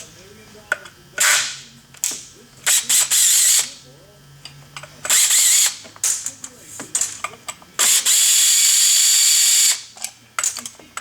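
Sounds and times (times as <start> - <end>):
cordless drill running: 5.1 - 5.8, 7.8 - 9.8.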